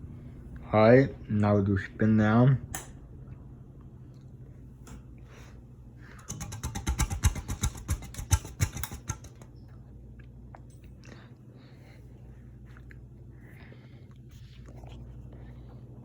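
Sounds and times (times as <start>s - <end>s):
ceiling fan humming: 0.0s - 16.0s
rapid clicking and rattling: 6.2s - 9.5s.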